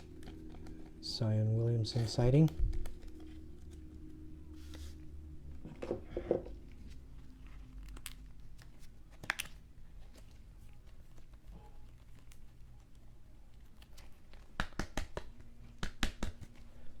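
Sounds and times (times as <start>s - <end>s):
low steady hum: 0.0s - 14.4s
plastic packaging crinkling: 2.0s - 5.0s, 6.6s - 14.6s.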